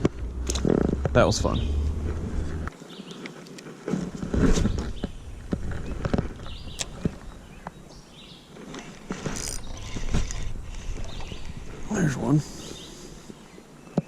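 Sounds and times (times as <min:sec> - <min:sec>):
fishing gear knocking and clicking: 0:08.7 - 0:11.1.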